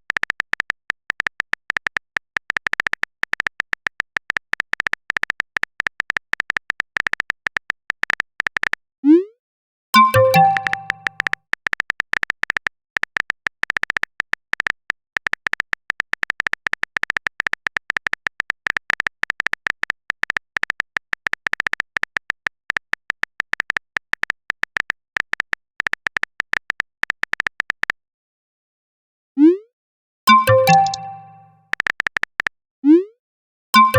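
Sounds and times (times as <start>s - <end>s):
phone keyboard typing clicks: 0.0s - 8.8s, 10.0s - 28.0s, 30.3s - 32.5s
short chime: 30.3s - 31.6s.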